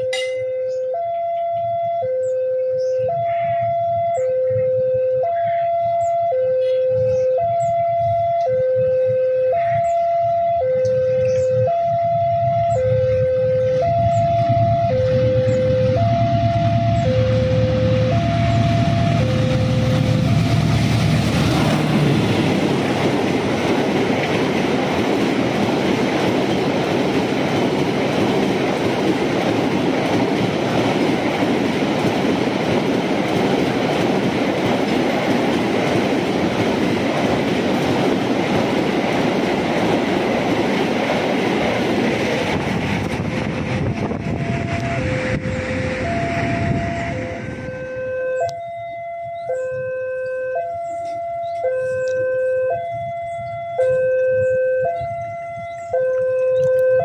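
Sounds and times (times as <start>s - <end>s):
locomotive rumble: 0.0s - 57.0s
two-tone crossing warning bell: 0.0s - 57.0s
train wheels rushing on rails: 13.7s - 47.7s.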